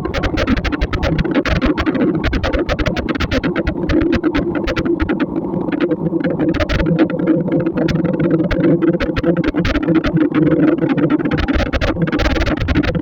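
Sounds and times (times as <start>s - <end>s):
raindrops ticking on vehicle: 0.1s - 13.0s.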